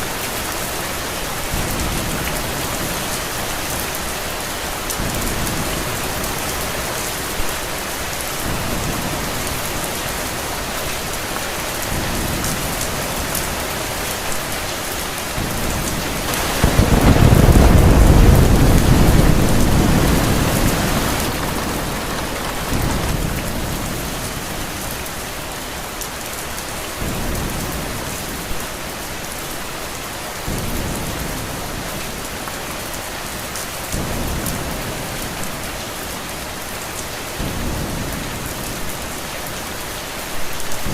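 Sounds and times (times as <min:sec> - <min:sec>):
steady rain: 0:00.0 - 0:40.9
thunder rumbling: 0:15.3 - 0:25.4.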